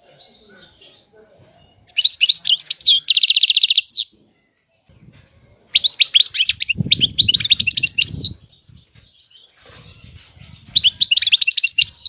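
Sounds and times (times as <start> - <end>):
goldfinch twittering and trilling: 1.8 - 4.1, 5.7 - 12.0
low rustling noise: 6.6 - 11.0.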